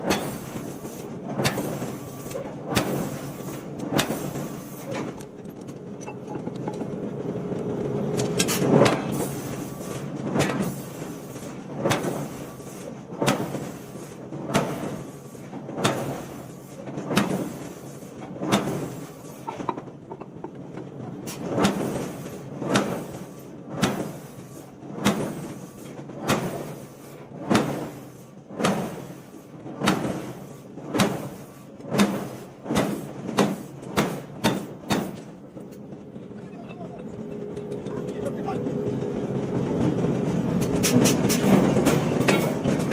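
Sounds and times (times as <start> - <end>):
forging hammer striking steel: 0.0 - 0.7, 32.0 - 35.3, 40.6 - 42.7.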